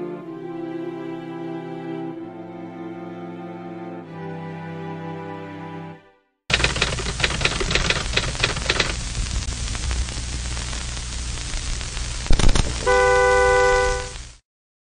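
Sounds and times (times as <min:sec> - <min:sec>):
scratchy clicks: 0:06.5 - 0:14.3
brief crackle: 0:06.5 - 0:14.4
steady hiss and low hum: 0:06.5 - 0:14.4.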